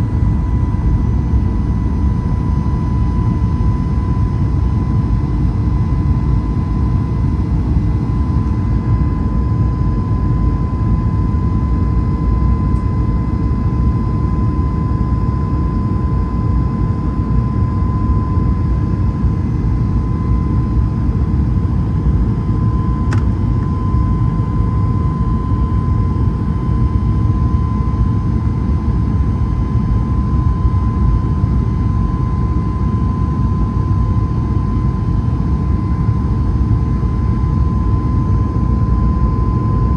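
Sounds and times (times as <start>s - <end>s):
jet engines rumbling and whining: 0.0s - 39.9s
brief click: 23.1s - 23.7s.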